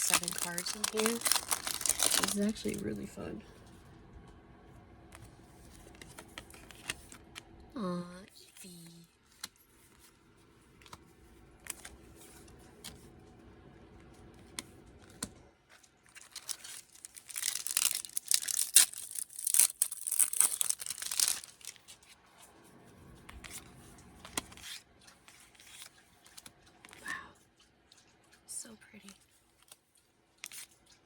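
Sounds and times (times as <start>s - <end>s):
foil wrapper crinkling and tearing: 0.0s - 3.2s, 15.1s - 22.2s, 29.2s - 31.0s.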